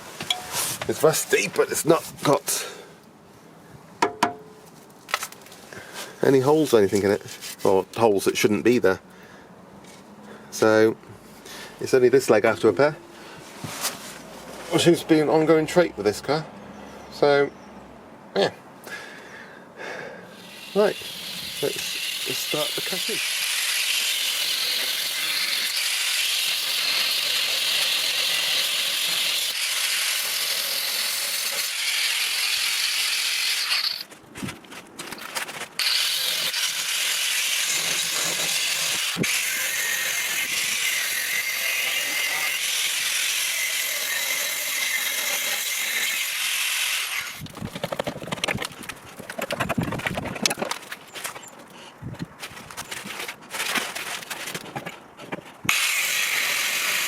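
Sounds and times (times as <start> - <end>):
power tool cutting steel: 20.4 - 34.1, 35.8 - 47.4, 55.7 - 57.0
rattling and crackling: 47.4 - 51.6.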